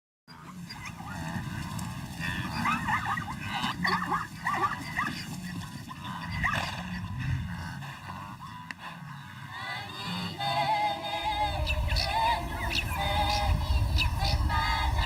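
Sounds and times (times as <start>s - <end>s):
animal yipping and whimpering: 2.3s - 7.0s
steady low hum: 5.3s - 15.0s.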